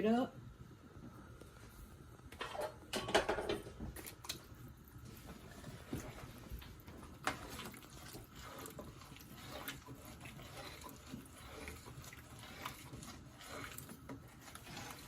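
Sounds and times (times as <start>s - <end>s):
spoon stirring stew: 5.1s - 15.0s.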